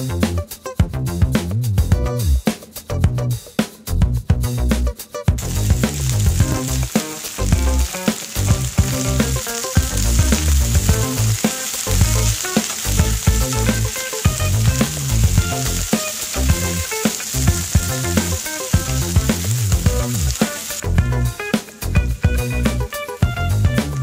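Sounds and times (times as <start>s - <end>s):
background music with beat: 0.0s - 24.0s
vegetables sizzling in hot oil: 5.4s - 24.0s.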